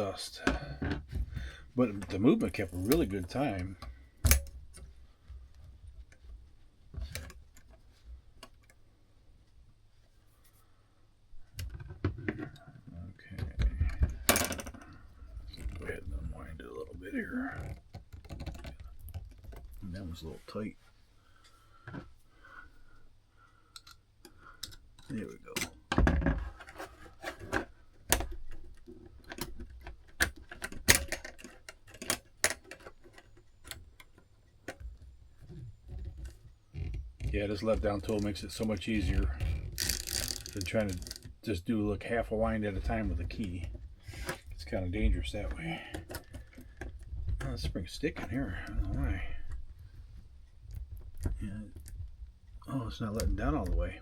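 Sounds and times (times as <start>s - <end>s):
metallic clicks of clock movement: 23.4s - 25.9s, 27.2s - 54.0s.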